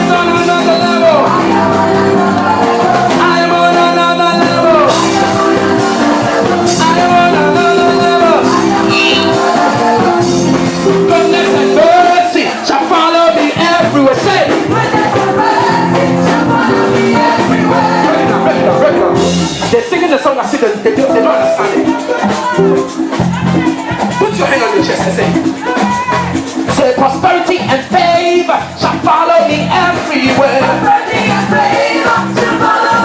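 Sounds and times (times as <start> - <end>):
person singing: 0.0 - 19.5, 21.0 - 24.4
band playing gospel chords: 0.0 - 33.0.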